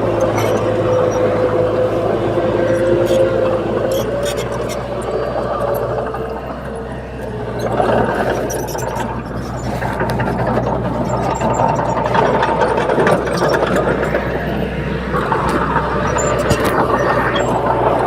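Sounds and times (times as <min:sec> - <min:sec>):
bulldozer diesel engine running: 0:00.0 - 0:18.0
metallic clanking and clicks: 0:07.6 - 0:18.0.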